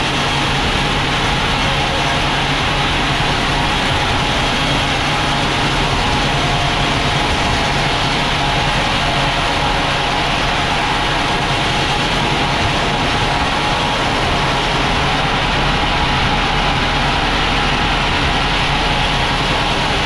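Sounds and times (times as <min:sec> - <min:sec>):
even rushing noise: 0:00.0 - 0:20.0.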